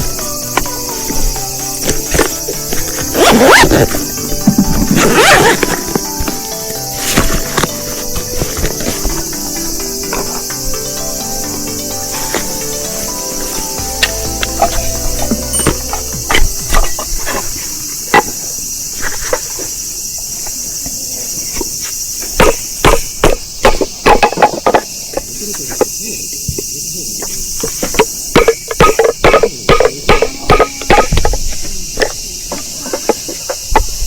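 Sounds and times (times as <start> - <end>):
crickets chirping: 0.0 - 34.0
firewood splitting knocks: 22.4 - 24.9.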